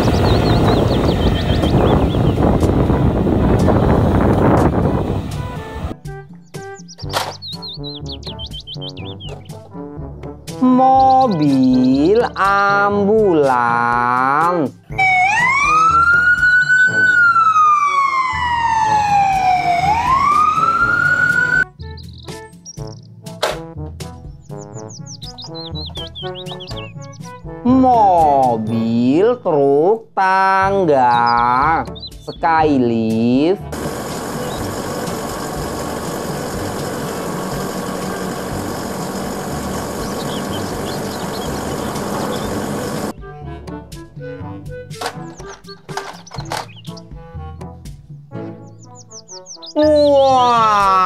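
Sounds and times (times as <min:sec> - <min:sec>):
truck engine running: 0:00.0 - 0:06.0, 0:18.4 - 0:21.6, 0:33.6 - 0:43.1
ambulance siren wailing: 0:14.9 - 0:21.7, 0:33.7 - 0:43.1
hydraulic boom hum: 0:33.7 - 0:43.1.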